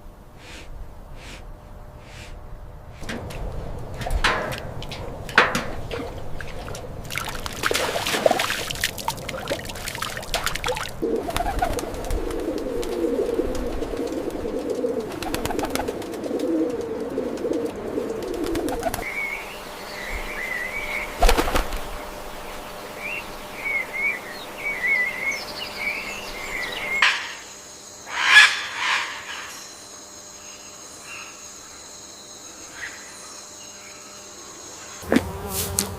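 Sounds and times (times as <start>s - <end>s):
low wavering cooing: 11.0s - 19.2s
high bird chirps: 23.7s - 31.4s.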